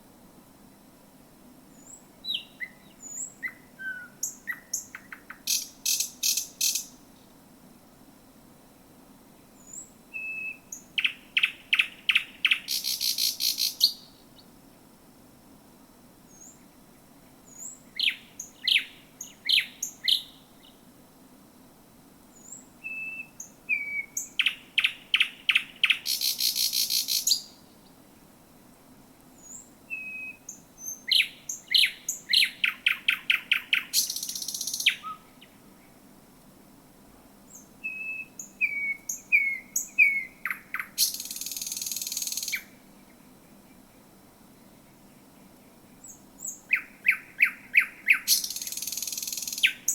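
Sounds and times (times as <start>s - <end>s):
nightingale singing: 1.7s - 7.3s, 9.5s - 14.5s, 16.3s - 20.8s, 22.3s - 28.0s, 29.4s - 36.0s, 37.5s - 49.9s.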